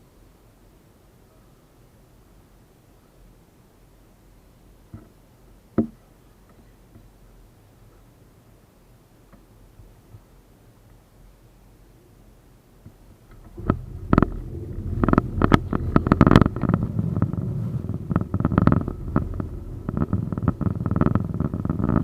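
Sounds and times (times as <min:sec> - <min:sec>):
tram running gear rumbling: 0:13.2 - 0:22.0
sharp irregular knocks: 0:13.3 - 0:22.0.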